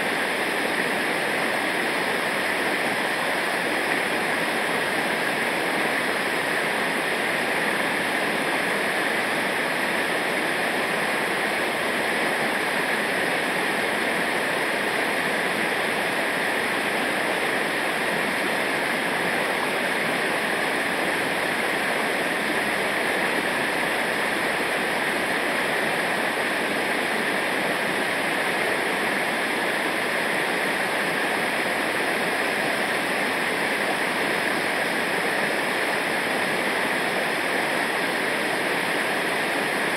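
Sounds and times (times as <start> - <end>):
rushing river water: 0.0 - 39.9.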